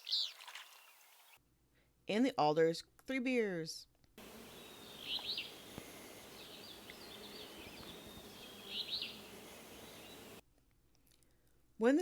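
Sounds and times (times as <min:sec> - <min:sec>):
bird singing burry song: 0:00.0 - 0:01.1, 0:04.2 - 0:10.4
steady outdoor hiss: 0:04.2 - 0:10.4.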